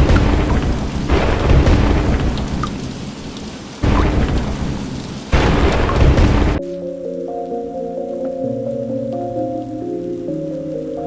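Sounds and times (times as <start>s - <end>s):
deep rumbling thunder: 0.0s - 6.6s
heavy rain pouring: 0.0s - 11.0s.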